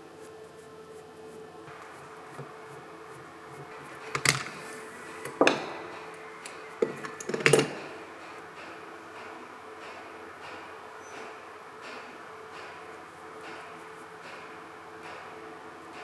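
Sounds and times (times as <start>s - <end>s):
steady low hum: 0.0s - 16.0s
tools knocking on workbench: 3.6s - 6.2s, 6.8s - 8.0s.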